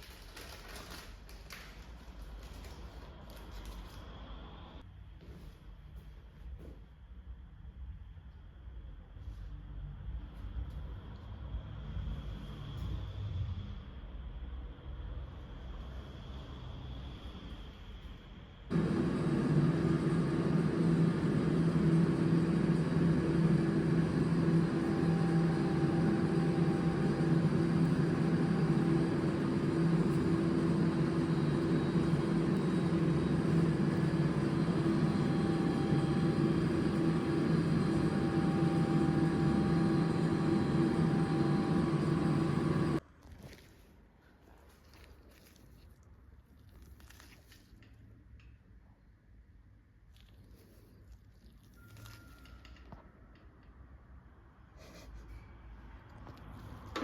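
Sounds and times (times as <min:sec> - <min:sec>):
vehicle engine rumble: 0:18.7 - 0:43.0.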